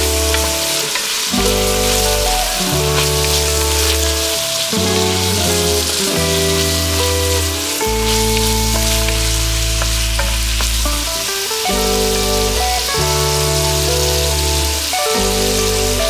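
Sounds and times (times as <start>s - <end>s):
background music of held chords: 0.0s - 16.0s
food sizzling in a pan: 0.0s - 16.0s.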